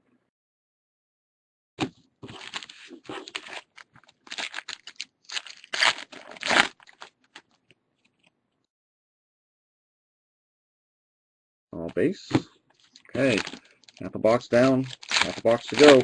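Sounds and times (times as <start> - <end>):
wrapper tearing and crinkling: 2.3 - 7.6, 12.8 - 16.0.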